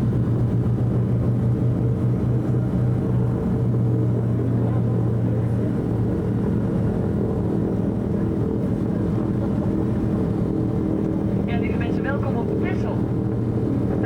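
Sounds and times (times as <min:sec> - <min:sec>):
propeller aircraft engines droning: 0:00.0 - 0:14.0.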